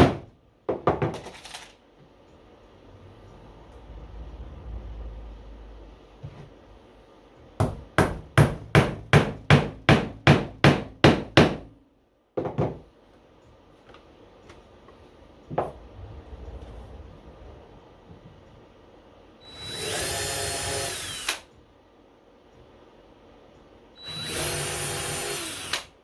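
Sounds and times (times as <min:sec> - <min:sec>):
hammer striking nails into wood: 0:07.6 - 0:11.7.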